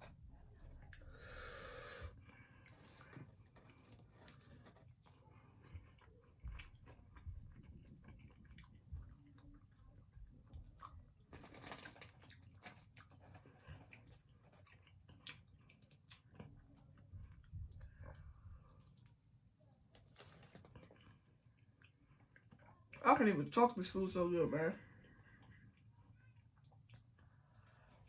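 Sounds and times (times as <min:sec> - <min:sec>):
person chewing and biting: 0:02.5 - 0:09.8.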